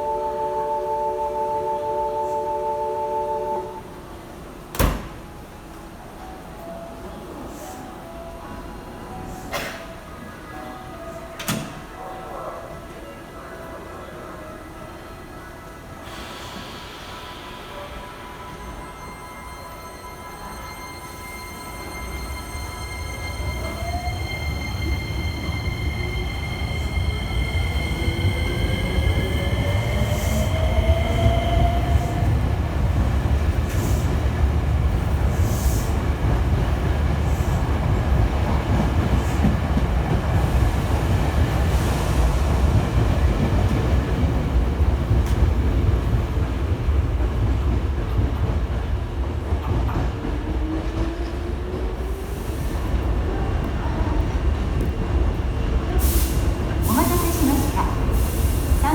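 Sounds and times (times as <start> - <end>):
train wheels rumbling on rails: 21.4 - 58.9.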